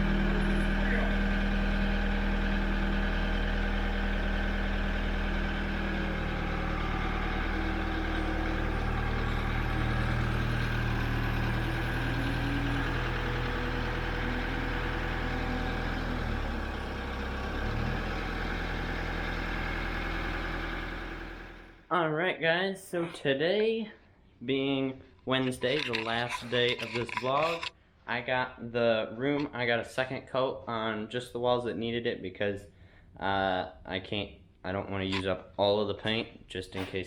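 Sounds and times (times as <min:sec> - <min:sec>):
vehicle engine running: 0:00.0 - 0:21.9.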